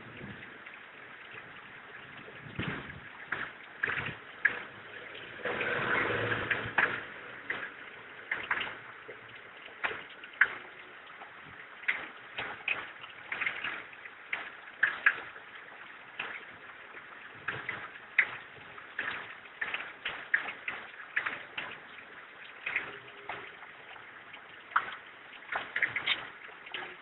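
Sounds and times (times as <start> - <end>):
sharp clicks and light knocks: 6.5 - 15.4, 16.1 - 16.6, 17.4 - 27.0.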